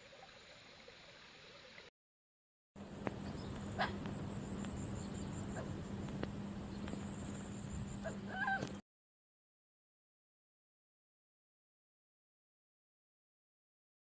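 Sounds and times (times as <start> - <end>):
outdoor noise: 2.8 - 8.8
steady low hum: 2.8 - 8.8
animal call bending in pitch: 8.0 - 8.8.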